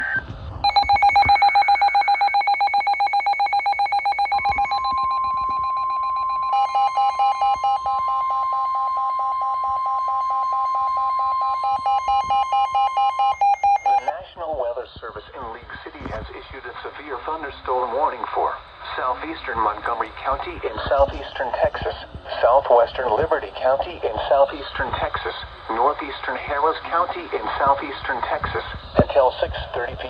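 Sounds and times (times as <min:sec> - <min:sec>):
rapid electronic beeping: 0:00.0 - 0:14.1
steady alert tone: 0:00.6 - 0:14.1.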